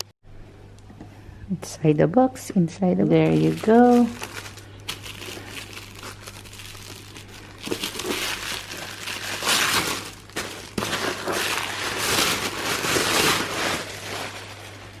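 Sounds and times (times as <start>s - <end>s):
packaging rustling and crinkling: 3.2s - 15.0s.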